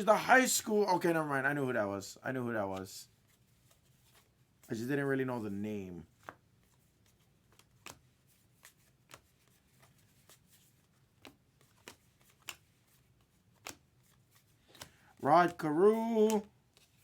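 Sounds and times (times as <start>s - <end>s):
cards clicking and snapping: 6.2s - 17.0s.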